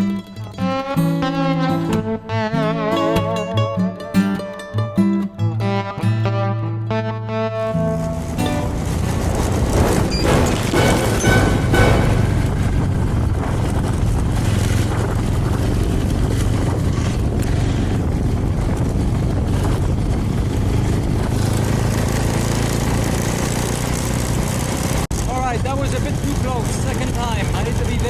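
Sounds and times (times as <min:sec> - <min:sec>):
wind and road noise: 0:07.7 - 0:28.0
small motorcycle engine running: 0:08.0 - 0:11.5, 0:12.7 - 0:28.0.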